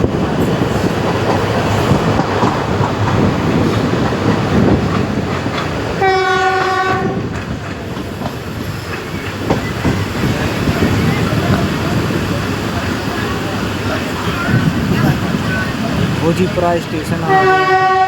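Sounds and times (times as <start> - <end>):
train rumbling on track: 0.0 - 18.0
train horn: 6.0 - 7.3, 17.2 - 18.0.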